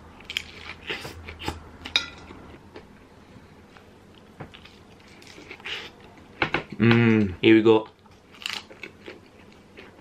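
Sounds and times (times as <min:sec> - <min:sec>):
crunchy taco chewing: 0:00.2 - 0:02.9, 0:08.1 - 0:10.0.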